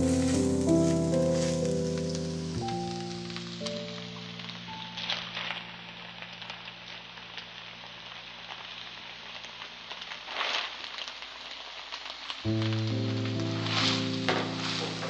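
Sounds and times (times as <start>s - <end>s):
rice sizzling in a wok: 0.0s - 15.0s
spatula stirring in a wok: 13.4s - 15.0s.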